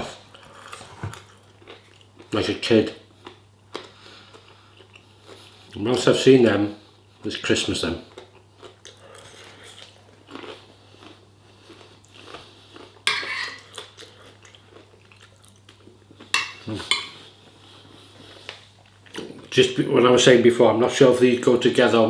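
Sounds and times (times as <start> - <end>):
person chewing: 0.3 - 2.3, 3.2 - 5.8, 8.1 - 19.5
sharp cutlery clatter: 13.1 - 13.7, 16.4 - 17.2
cutlery clinking against a plate: 13.1 - 13.9, 16.4 - 17.2.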